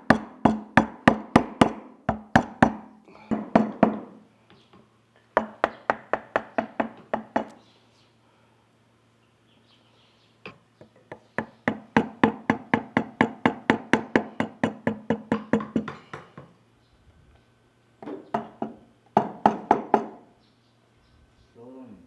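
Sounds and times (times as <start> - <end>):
mallet tapping chisel into wood: 0.0 - 4.1, 5.4 - 7.6, 11.1 - 16.5, 18.3 - 20.2.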